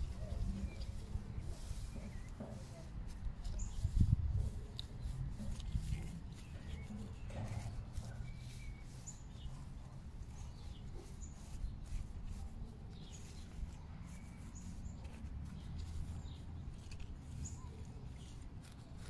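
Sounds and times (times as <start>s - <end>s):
wind rumble on microphone: 0.0s - 9.0s
small birds chirping: 0.0s - 19.0s.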